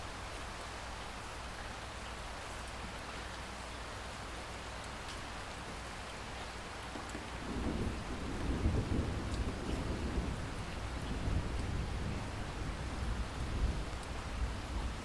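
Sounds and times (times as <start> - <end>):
steady rain hiss: 0.0 - 15.0
raindrops ticking: 6.4 - 12.1, 13.8 - 14.2.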